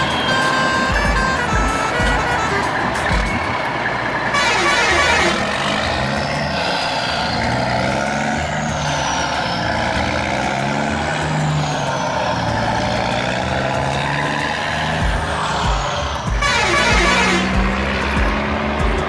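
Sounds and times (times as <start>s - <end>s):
heavy truck engine running: 0.0s - 19.0s.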